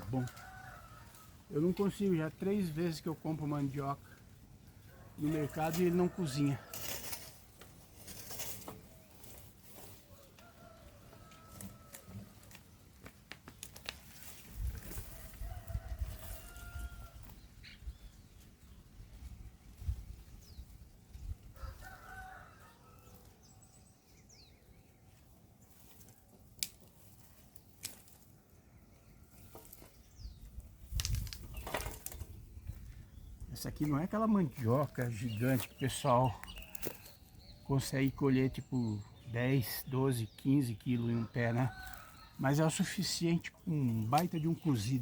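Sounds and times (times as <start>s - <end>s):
rooster crowing: 15.1s - 17.2s, 21.6s - 23.3s.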